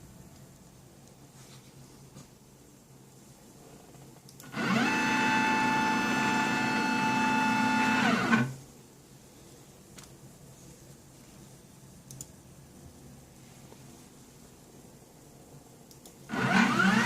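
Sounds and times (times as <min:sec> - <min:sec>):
machine motor whining: 0:04.4 - 0:08.6, 0:16.3 - 0:17.0.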